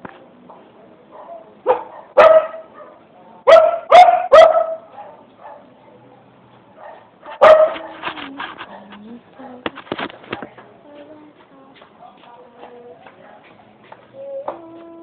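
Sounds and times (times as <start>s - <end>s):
dog barking: 1.1s - 5.7s, 6.8s - 9.6s.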